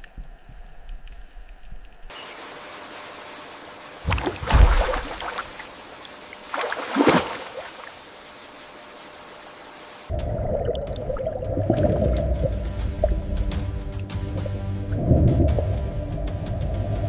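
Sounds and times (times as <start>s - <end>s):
flowing water rushing: 2.2s - 16.2s
loud water splashes: 4.0s - 8.0s.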